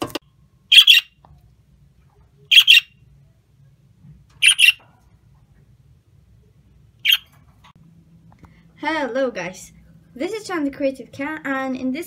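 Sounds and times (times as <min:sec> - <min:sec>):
parrot squawking: 0:00.7 - 0:01.2, 0:02.5 - 0:03.0, 0:04.4 - 0:04.8, 0:07.0 - 0:07.3.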